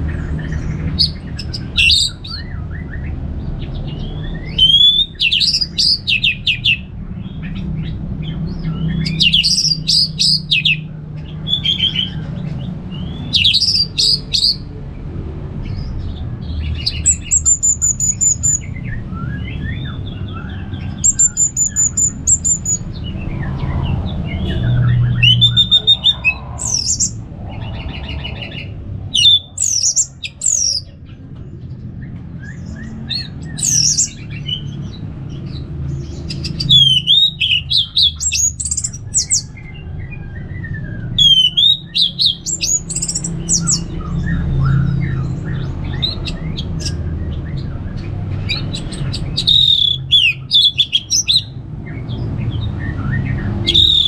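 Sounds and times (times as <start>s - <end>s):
steady low hum: 0.0s - 36.7s
thrush singing whistled phrases: 4.0s - 6.8s, 25.0s - 30.9s, 36.7s - 38.6s, 40.7s - 43.3s, 49.4s - 51.5s, 53.6s - 54.0s.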